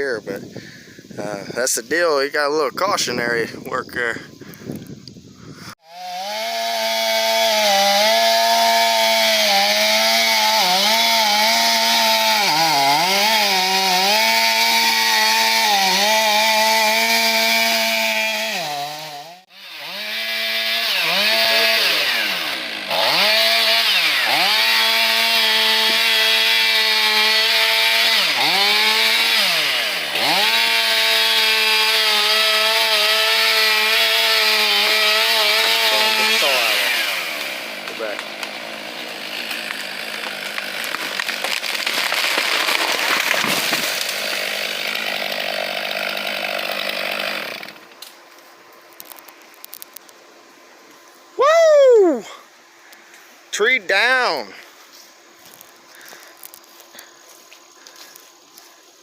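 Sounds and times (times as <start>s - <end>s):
chainsaw cutting wood: 5.8s - 48.2s.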